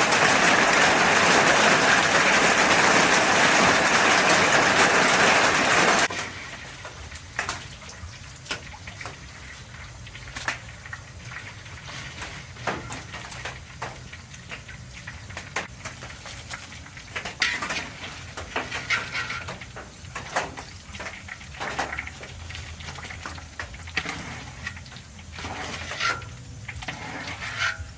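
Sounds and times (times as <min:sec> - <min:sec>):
low steady hum: 0:06.1 - 0:27.9
utensils clinking on pans: 0:17.1 - 0:22.2.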